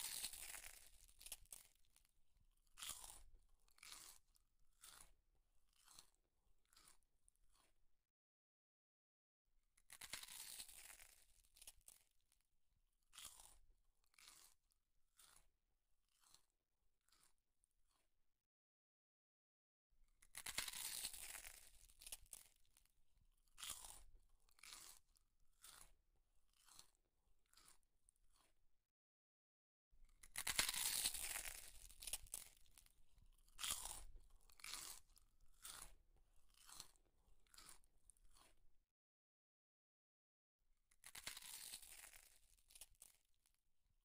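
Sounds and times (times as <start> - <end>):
person chewing food: 2.7 - 7.0, 13.1 - 14.6, 23.4 - 28.6, 30.2 - 38.6, 41.0 - 43.2.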